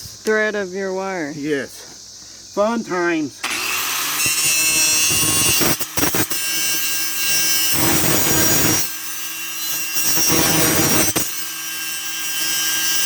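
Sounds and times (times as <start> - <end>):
power tool motor whine: 3.4 - 13.0
wire wheel scrubbing steel: 3.4 - 13.0.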